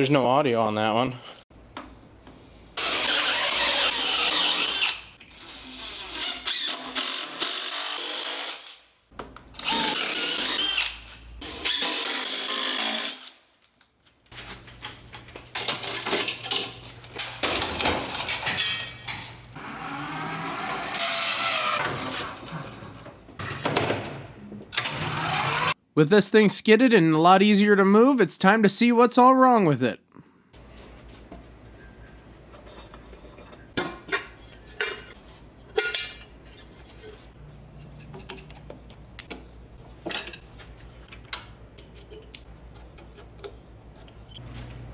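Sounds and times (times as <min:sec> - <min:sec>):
power drill running: 0:02.8 - 0:08.7, 0:09.6 - 0:11.0, 0:19.6 - 0:22.1, 0:24.8 - 0:25.8.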